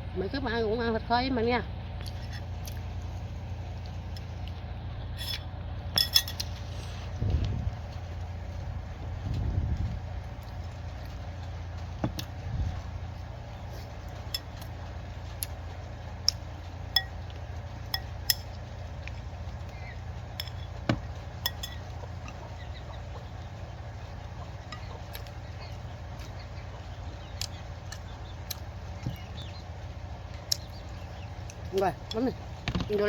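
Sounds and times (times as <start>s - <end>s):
steady low hum: 0.0s - 33.0s
utensils clinking on dishes: 6.0s - 6.9s, 21.4s - 22.4s.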